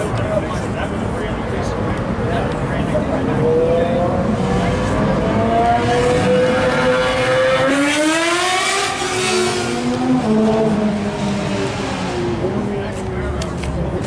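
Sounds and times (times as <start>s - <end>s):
car engine revving loud: 3.2s - 12.8s.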